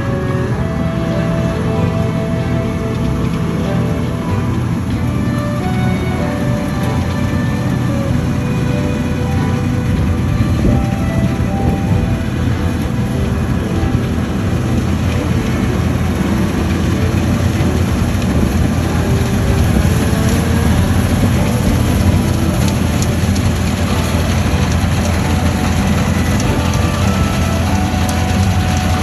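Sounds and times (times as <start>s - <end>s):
combine harvester droning: 0.0s - 29.0s.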